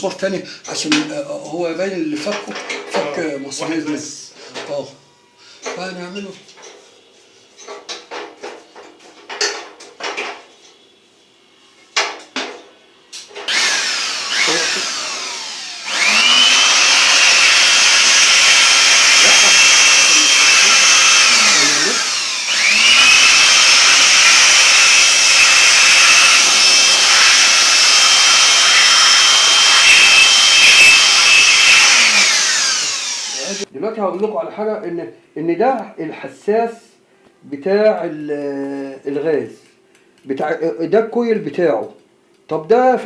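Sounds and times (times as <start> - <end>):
power tool whining: 13.4 - 33.7.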